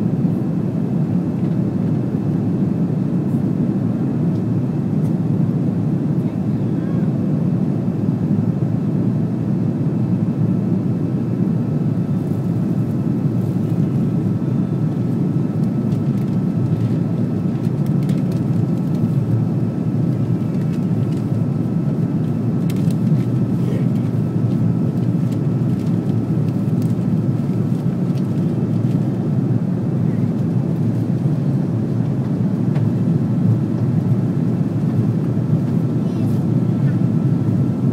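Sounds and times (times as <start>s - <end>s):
airliner cabin engine rumble: 0.0s - 37.9s.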